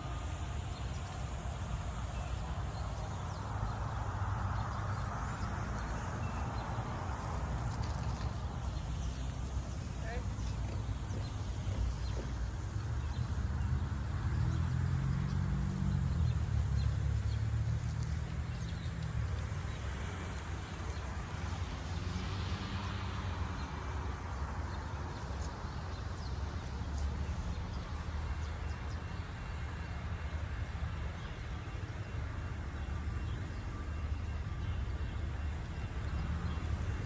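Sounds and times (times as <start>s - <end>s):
diesel locomotive engine rumbling: 0.0s - 37.0s.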